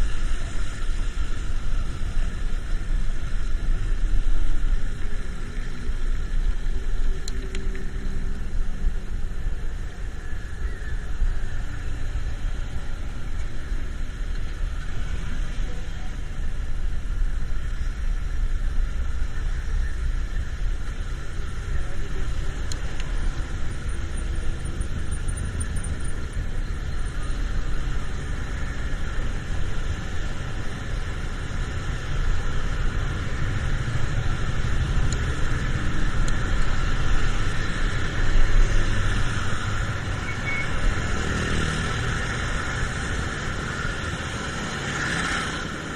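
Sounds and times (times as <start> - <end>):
car traffic rumble: 0.0 - 45.9.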